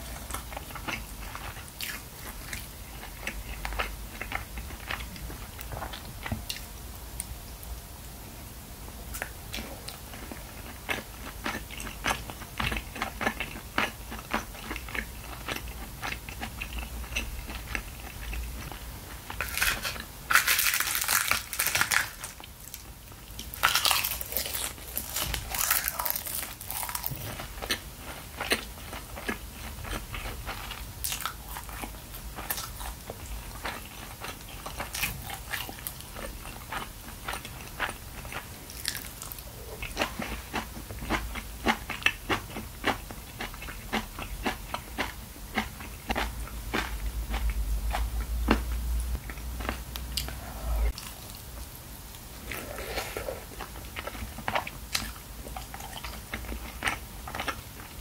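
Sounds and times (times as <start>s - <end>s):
crisp crunching: 19.3s - 22.8s, 23.5s - 27.8s.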